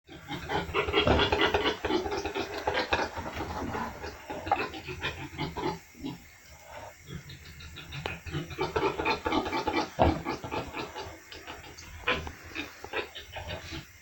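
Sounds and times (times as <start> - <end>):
piglets grunting: 0.1 - 14.0
piglets scuffling: 0.2 - 13.9.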